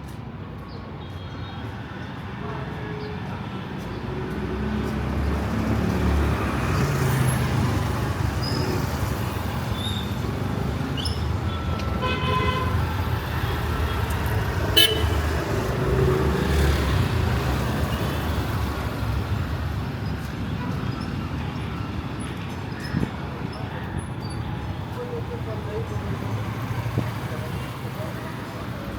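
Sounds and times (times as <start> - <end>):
motor traffic passing: 3.8 - 28.9
car horn honk: 12.0 - 12.8, 14.7 - 15.3.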